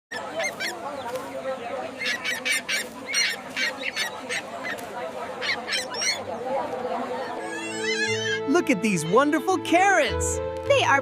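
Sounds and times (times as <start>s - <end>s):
birds honking squawks: 0.1s - 10.1s
murmur of voices: 0.1s - 11.0s.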